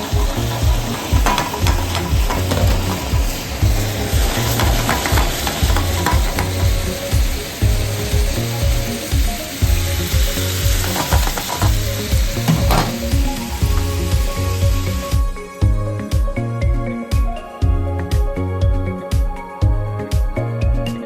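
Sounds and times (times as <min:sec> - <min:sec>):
chicken sizzling in hot oil: 0:00.0 - 0:15.5
background music with low beat: 0:00.0 - 0:21.0.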